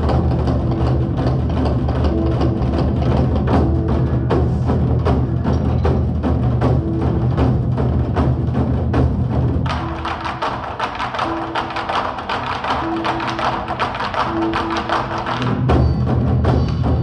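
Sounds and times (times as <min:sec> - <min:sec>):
deep low backing: 0:00.0 - 0:10.2
drum ensemble playing fast rhythm: 0:00.0 - 0:17.0.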